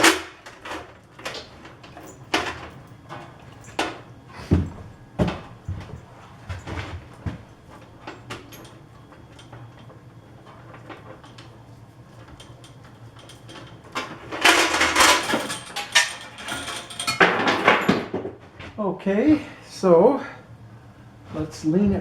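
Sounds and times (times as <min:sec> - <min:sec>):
metal clattering and scraping: 0:12.2 - 0:18.2.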